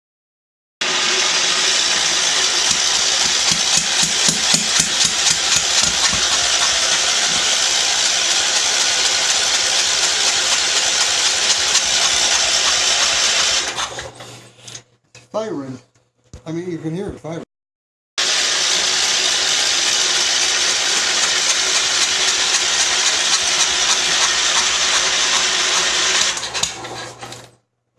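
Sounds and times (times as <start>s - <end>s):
tractor engine cranking: 1.2s - 14.4s, 18.7s - 27.5s.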